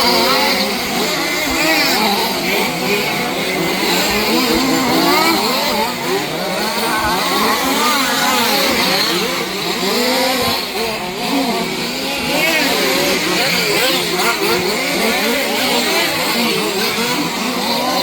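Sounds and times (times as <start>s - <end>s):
small two-stroke engines revving: 0.0s - 18.0s.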